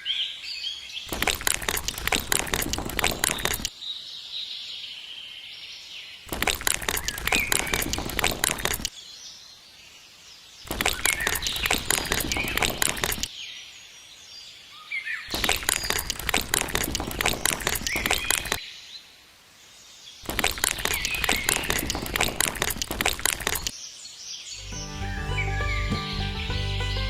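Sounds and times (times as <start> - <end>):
birds chirping: 6.4 - 9.0, 10.6 - 13.3, 15.2 - 18.6, 20.2 - 23.7, 24.5 - 27.0.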